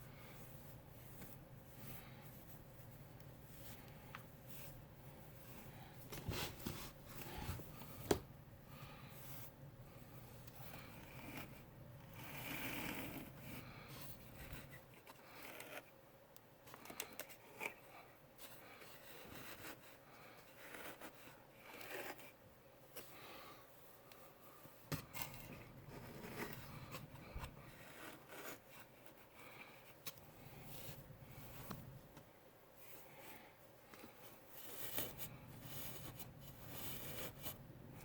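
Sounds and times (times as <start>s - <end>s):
steel wool rustling and scraping: 0.0s - 8.0s.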